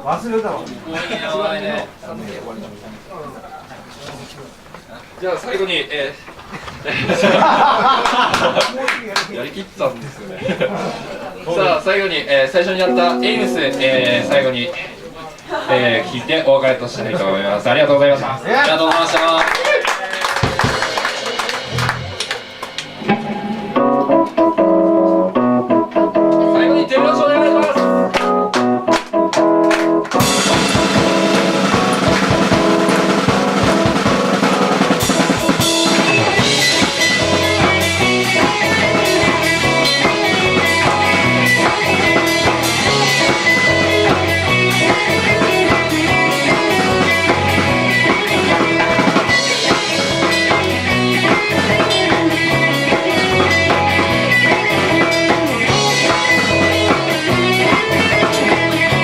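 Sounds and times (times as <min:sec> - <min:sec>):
rock band playing live: 0:12.8 - 0:15.1, 0:20.4 - 0:59.0.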